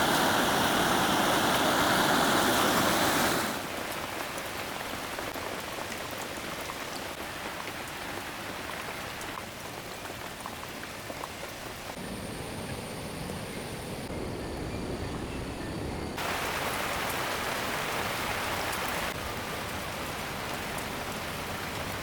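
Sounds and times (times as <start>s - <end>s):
stream water rushing: 0.0s - 11.0s, 16.2s - 22.0s
steady rainfall: 0.0s - 22.0s.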